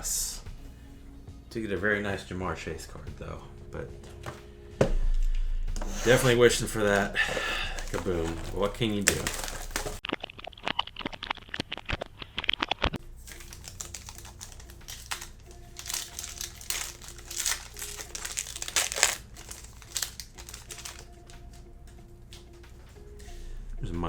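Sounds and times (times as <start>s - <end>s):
wrappers and cards rustling: 5.8s - 10.0s, 11.8s - 23.4s
packaging crackling clicks: 6.8s - 22.6s.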